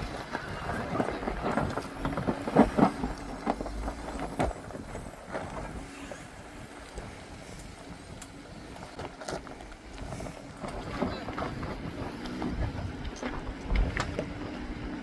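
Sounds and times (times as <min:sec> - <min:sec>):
off-road vehicle engine rumble: 0:00.0 - 0:15.0
wind noise on microphone: 0:00.0 - 0:15.0.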